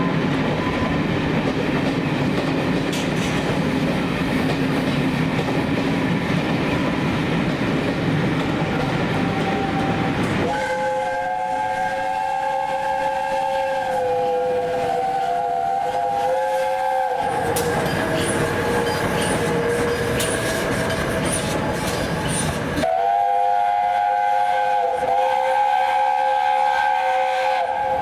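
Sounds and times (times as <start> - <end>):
locomotive whistling tone: 0.0 - 1.2, 8.6 - 28.0.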